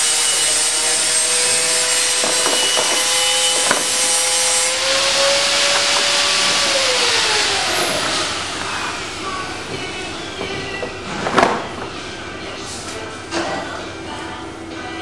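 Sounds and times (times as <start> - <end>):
drill motors whining: 0.0 - 11.2
cutters rasping through wood: 0.0 - 11.7.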